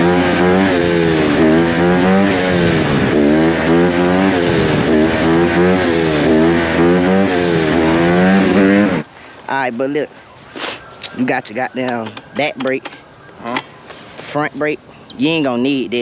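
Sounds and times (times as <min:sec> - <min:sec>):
dirt bike engine revving: 0:00.0 - 0:09.1.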